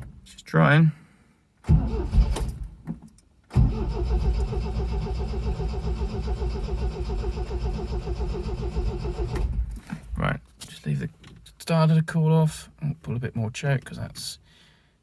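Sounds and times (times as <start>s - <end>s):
starter motor cranking engine: 1.7s - 2.6s, 3.5s - 9.8s.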